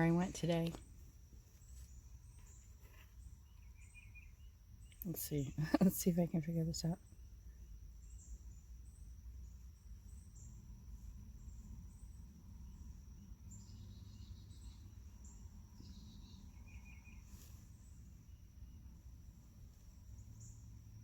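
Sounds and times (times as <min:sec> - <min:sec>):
insects trilling: 0:00.0 - 0:21.0
bird chirps: 0:01.6 - 0:06.0, 0:13.5 - 0:18.0.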